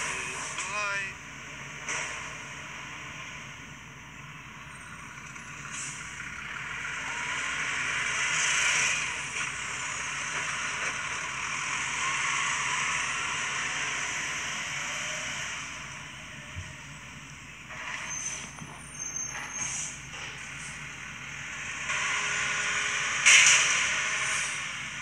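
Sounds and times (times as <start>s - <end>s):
garbage truck hiss: 5.7s - 16.9s, 17.6s - 25.0s.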